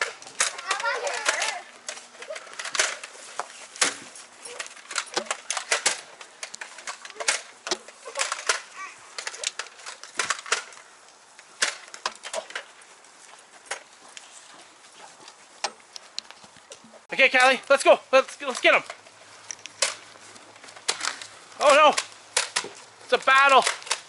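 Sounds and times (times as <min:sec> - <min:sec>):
sharp clicks and knocks: 0:00.0 - 0:10.8.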